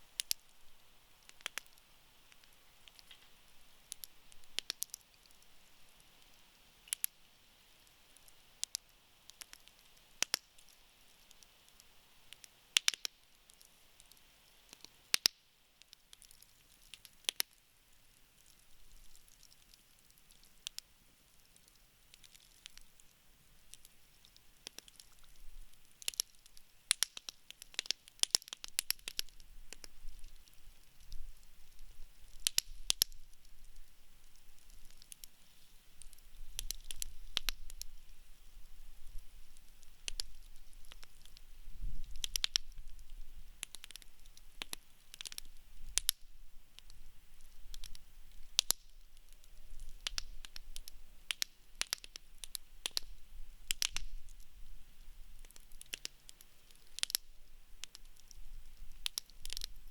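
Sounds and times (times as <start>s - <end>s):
wood fire crackling and popping: 0.1s - 59.9s
low rumble of flames: 28.7s - 59.9s.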